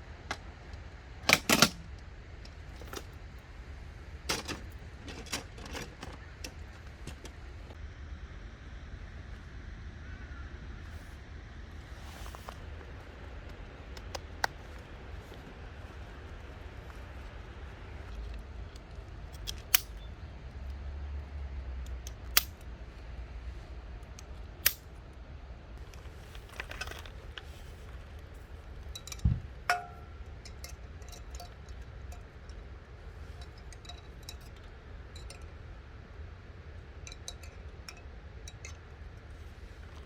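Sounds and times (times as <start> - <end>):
low steady rumble: 0.0 - 40.0
sharp clicks of camping gear: 0.2 - 3.3, 12.2 - 20.2, 21.9 - 22.7, 24.2 - 24.9, 25.8 - 28.2
short ringing clink: 29.0 - 32.2.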